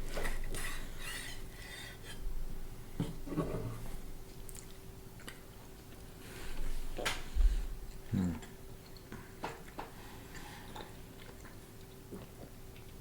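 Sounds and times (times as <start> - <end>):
faint steady hum: 0.0 - 13.0
chewing and rustling: 7.8 - 13.0.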